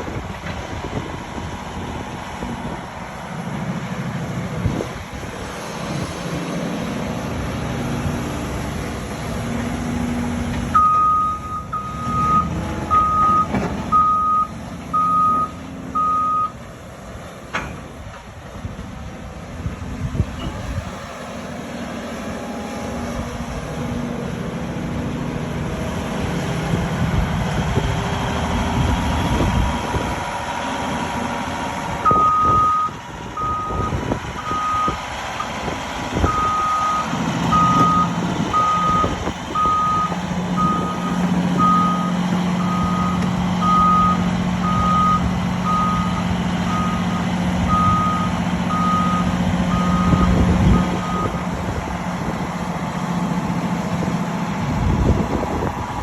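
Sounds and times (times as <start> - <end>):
excavator diesel engine running: 0.0 - 56.0
heavy clunks: 12.5 - 15.4, 17.5 - 18.3, 37.3 - 41.9.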